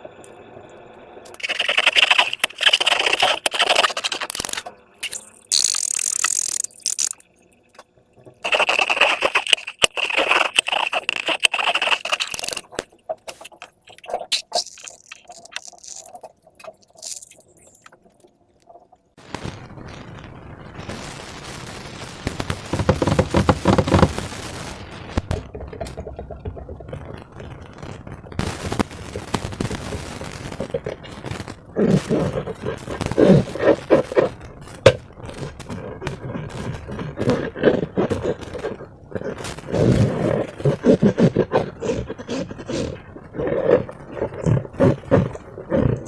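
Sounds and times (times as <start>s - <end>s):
slime crackling and clicking: 1.3s - 7.3s, 8.4s - 18.8s.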